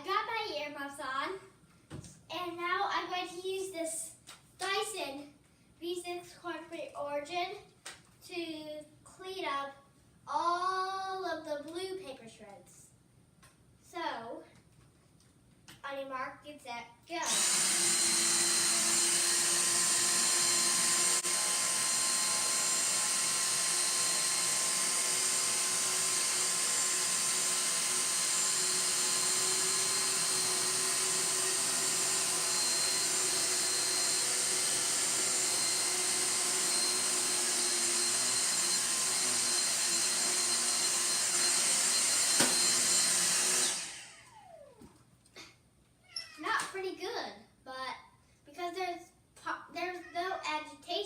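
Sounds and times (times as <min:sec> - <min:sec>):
vacuum cleaner motor whine: 0:17.2 - 0:45.0
vacuum motor winding down: 0:17.2 - 0:45.0.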